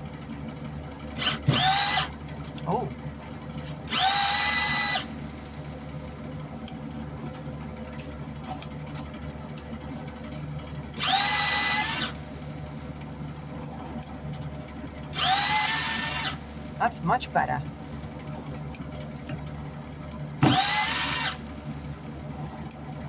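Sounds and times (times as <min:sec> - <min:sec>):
welder wire-feed motor whirring: 0:01.1 - 0:02.2, 0:03.7 - 0:05.7, 0:10.9 - 0:12.3, 0:15.1 - 0:16.6, 0:20.4 - 0:21.7.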